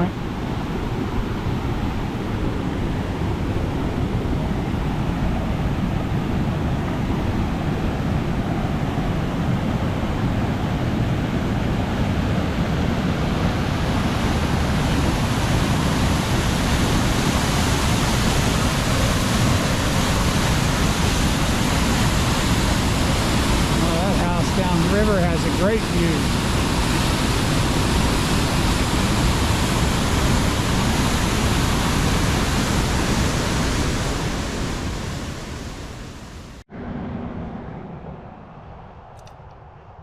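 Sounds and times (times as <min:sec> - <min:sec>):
waterfall rushing: 0:13.1 - 0:36.5.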